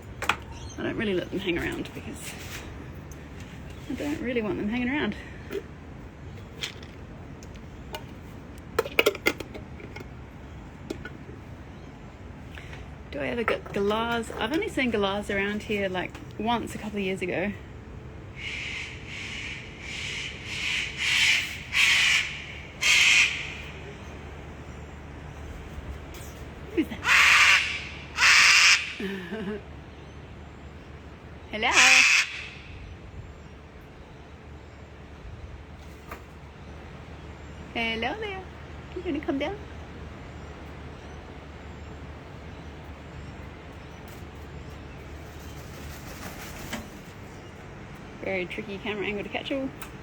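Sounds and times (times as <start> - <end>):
constant low hum: 0.0 - 50.0
cockatoo screeching: 18.4 - 23.7, 27.0 - 29.0, 31.7 - 32.7.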